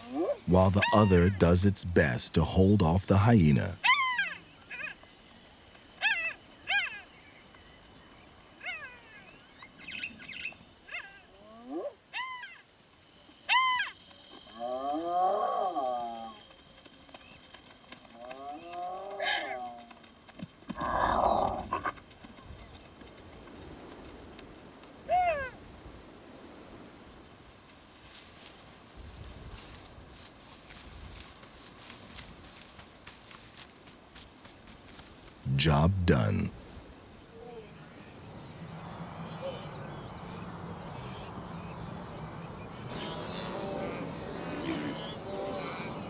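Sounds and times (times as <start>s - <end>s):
animal yelp: 3.8s - 5.0s, 10.9s - 12.6s, 13.5s - 14.0s.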